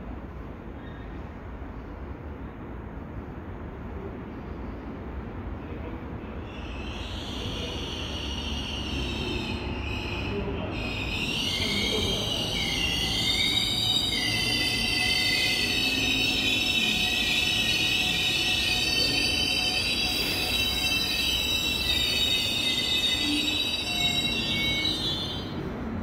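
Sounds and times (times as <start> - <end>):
electric train rumbling: 0.0 - 26.0
train brakes squealing: 0.8 - 1.3, 6.4 - 25.9.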